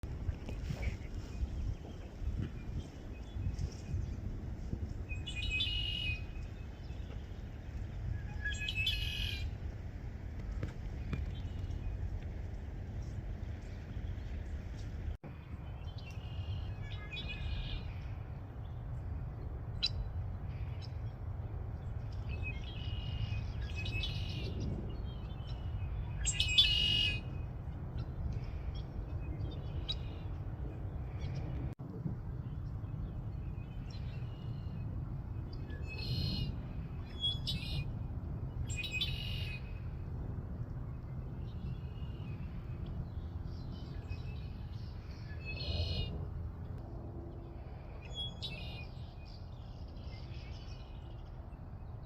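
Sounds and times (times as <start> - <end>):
blackbirds singing: 5.1 - 7.2, 8.3 - 9.5, 15.5 - 18.8, 22.0 - 31.6, 35.4 - 37.9, 38.6 - 39.9, 41.4 - 46.8, 48.0 - 52.0.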